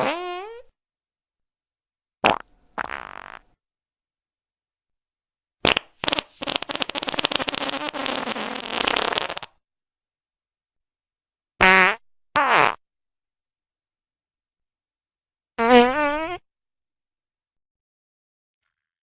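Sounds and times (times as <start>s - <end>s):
fart sound effects: 0.0s - 0.7s, 2.2s - 3.5s, 5.6s - 9.6s, 11.6s - 12.8s, 15.6s - 16.5s.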